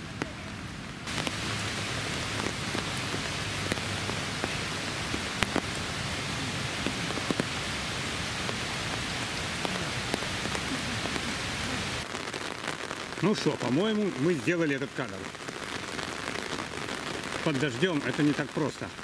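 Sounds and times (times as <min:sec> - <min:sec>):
raindrops ticking sharply: 0:00.0 - 0:19.0
steady rain hiss: 0:00.0 - 0:19.0.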